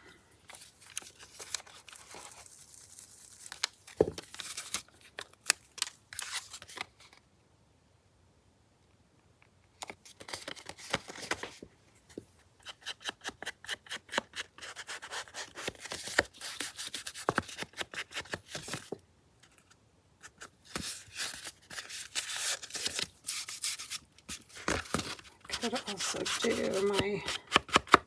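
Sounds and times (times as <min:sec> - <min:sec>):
scratchy rubbing on paper: 0:25.5 - 0:27.2.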